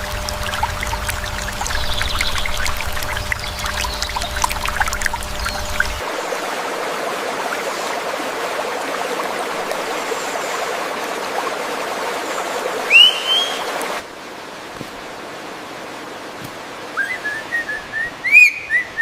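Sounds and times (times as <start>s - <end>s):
stream water running: 0.0s - 19.0s
bird whistled call: 12.9s - 13.7s, 17.0s - 19.0s.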